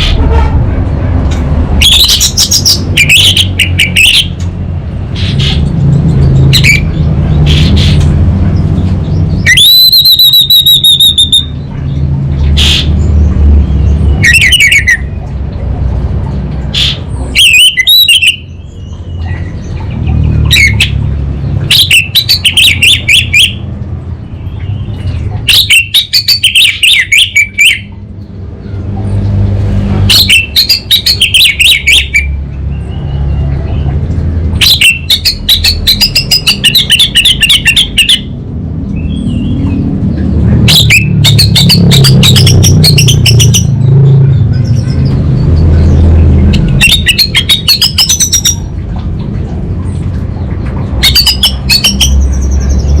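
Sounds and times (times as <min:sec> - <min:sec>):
steady low rumble: 0:00.0 - 0:09.5, 0:38.2 - 0:53.0.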